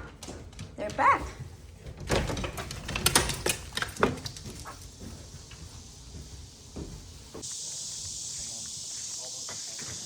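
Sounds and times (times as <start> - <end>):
insects chirring: 3.9 - 10.0.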